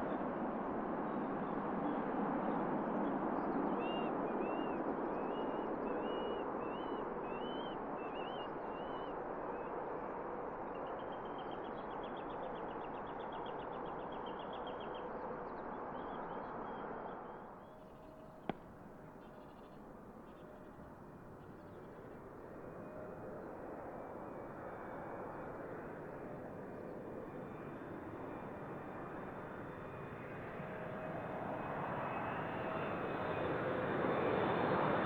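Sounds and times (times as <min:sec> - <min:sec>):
jet aircraft noise: 0:20.1 - 0:35.0.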